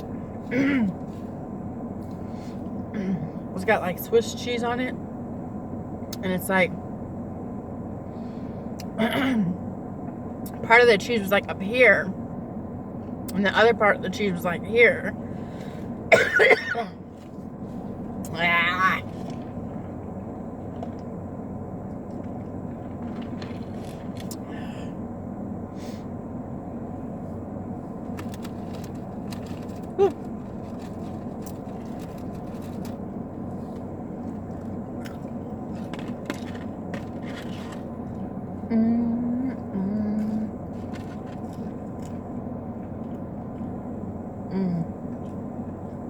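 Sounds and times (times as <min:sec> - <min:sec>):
steady car interior hum: 0:00.0 - 0:46.0
person humming mm: 0:38.7 - 0:40.5, 0:44.5 - 0:45.0.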